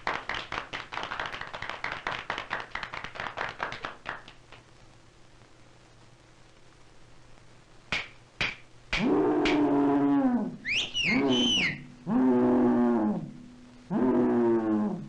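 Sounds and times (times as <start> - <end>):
sharp knocks: 7.9 - 9.6
low held bellow: 9.0 - 15.0
high squealing glides: 10.7 - 11.9.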